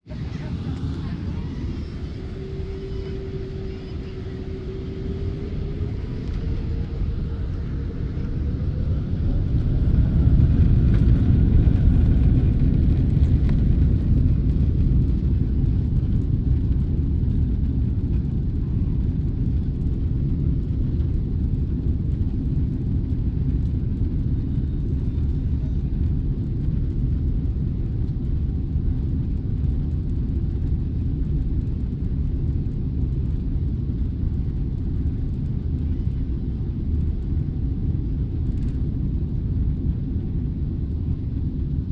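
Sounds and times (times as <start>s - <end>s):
jet engines spooling up: 0.1s - 13.4s.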